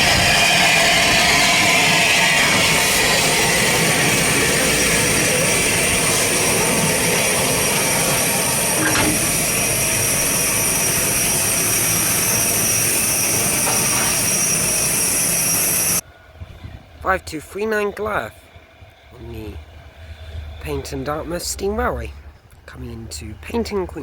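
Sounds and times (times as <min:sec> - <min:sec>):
steam locomotive hissing: 0:00.0 - 0:16.0.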